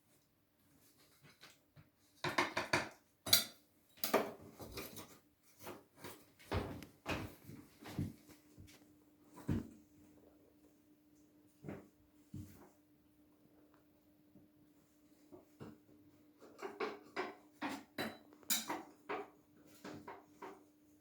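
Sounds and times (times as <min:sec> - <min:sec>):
metal tools knocking and scraping: 0:02.2 - 0:05.2, 0:16.4 - 0:19.3.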